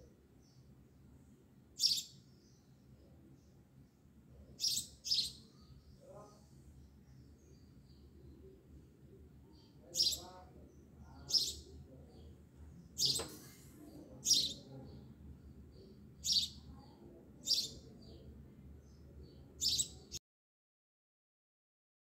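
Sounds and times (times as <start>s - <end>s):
bird chirping: 1.8s - 3.6s, 4.4s - 8.5s, 9.5s - 20.2s.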